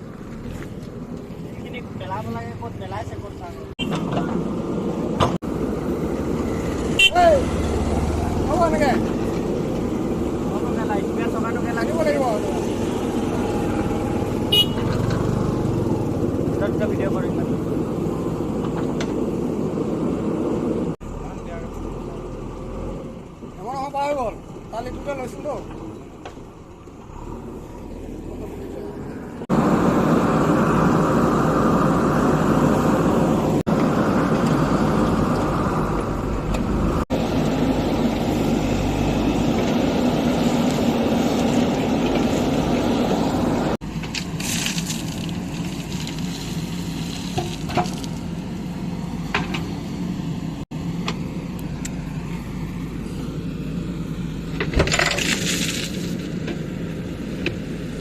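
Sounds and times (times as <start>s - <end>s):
heavy diesel engines running hard: 27.1s - 44.0s.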